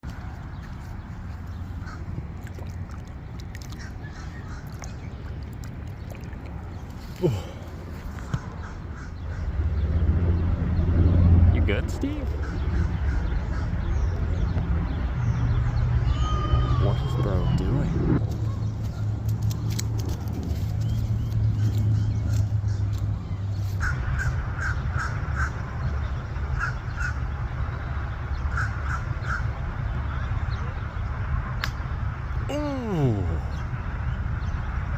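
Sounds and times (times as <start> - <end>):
steady low rumble: 0.0 - 34.9
harsh bird calls: 0.1 - 10.9, 11.6 - 19.7, 20.7 - 31.1, 31.7 - 34.8
bird calling: 0.5 - 9.6, 11.9 - 14.5, 15.7 - 19.2.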